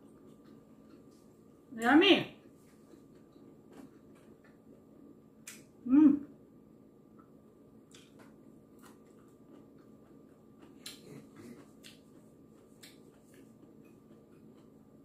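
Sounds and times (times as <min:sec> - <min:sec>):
quiet chewing: 0:00.0 - 0:01.7, 0:02.3 - 0:05.7, 0:07.1 - 0:15.0
mouth clicks and smacks: 0:07.9 - 0:14.0.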